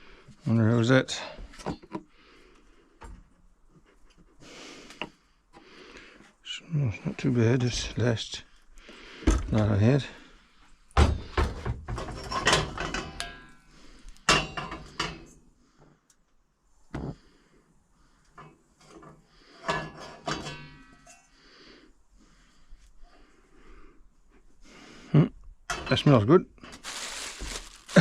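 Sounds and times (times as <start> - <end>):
pots and pans clattering: 11.0 - 13.5, 14.3 - 15.3, 19.6 - 21.1.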